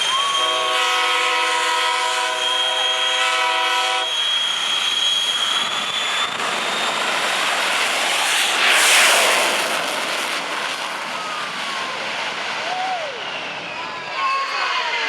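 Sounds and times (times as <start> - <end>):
jet engine roaring with whine: 0.0 - 15.0
chord of horn-like tones: 0.3 - 4.1.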